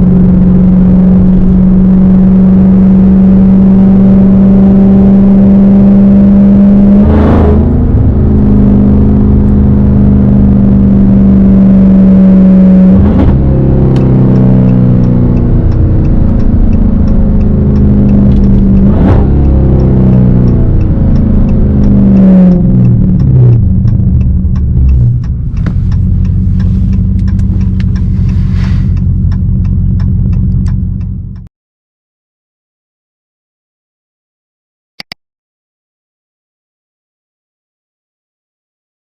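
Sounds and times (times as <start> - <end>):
car engine running loud: 0.0 - 31.5
light regular ticking: 13.4 - 31.5.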